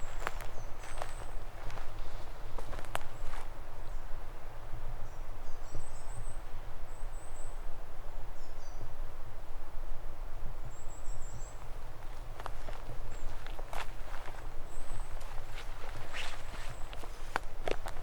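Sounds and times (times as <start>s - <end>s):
songbird chirping: 0.0s - 4.1s, 10.7s - 11.8s, 12.4s - 18.0s
faint forest hush: 0.0s - 18.0s.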